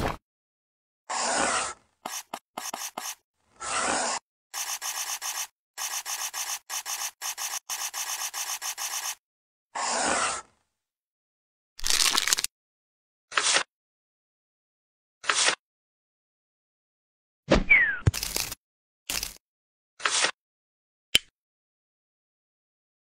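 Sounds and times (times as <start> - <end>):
pen scratching on paper: 1.2 - 9.2.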